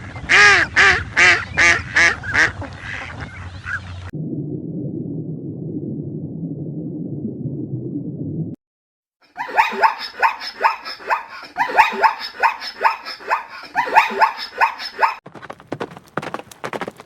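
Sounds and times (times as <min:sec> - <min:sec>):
dog barking: 0:09.4 - 0:15.2
hooves clip-clopping: 0:15.2 - 0:17.0.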